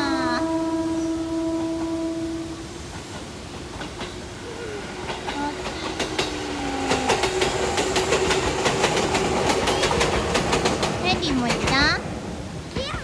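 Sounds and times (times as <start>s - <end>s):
electric train passing: 0.0s - 13.0s
wheels clacking over rail joints: 2.9s - 13.0s.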